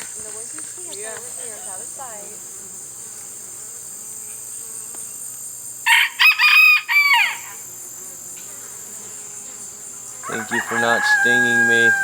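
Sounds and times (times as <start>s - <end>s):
insects droning: 0.0s - 12.0s
rooster crowing: 5.8s - 7.6s, 10.2s - 12.0s.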